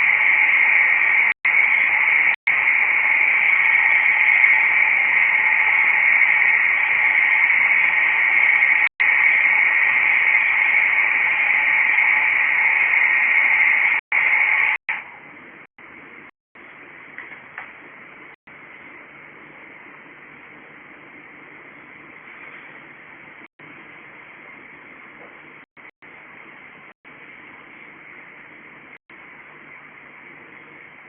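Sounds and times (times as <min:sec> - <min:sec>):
static hiss: 0:00.0 - 0:15.2.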